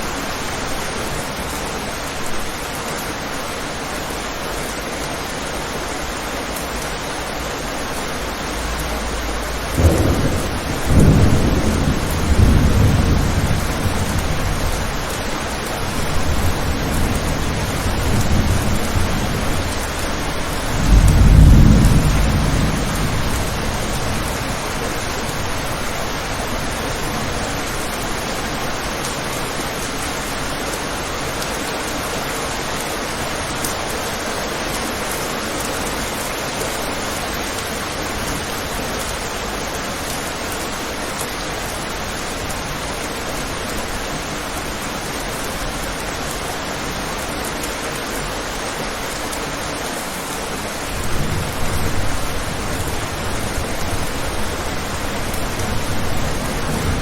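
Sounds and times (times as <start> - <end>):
steady rain falling: 0.0 - 57.0
low rumble of thunder: 8.3 - 28.0, 50.8 - 57.0.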